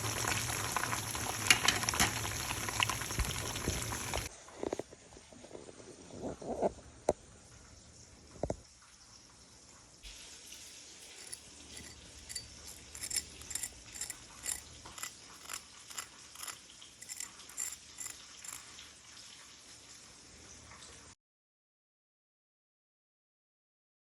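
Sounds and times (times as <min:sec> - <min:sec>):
chicken frying in oil: 0:00.0 - 0:04.3, 0:15.5 - 0:21.2
oil crackling and popping: 0:00.0 - 0:04.3.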